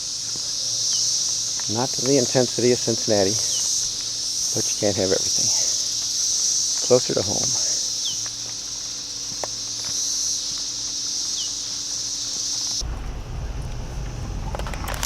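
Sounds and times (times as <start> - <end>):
cicadas buzzing: 0.0 - 15.0
low rumble: 12.8 - 15.0.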